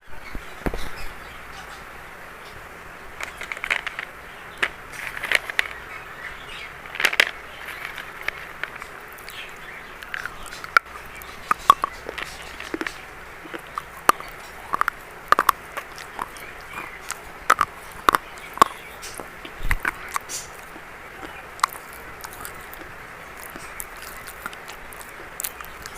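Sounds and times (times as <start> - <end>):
chalk being crunched: 6.9 - 25.9.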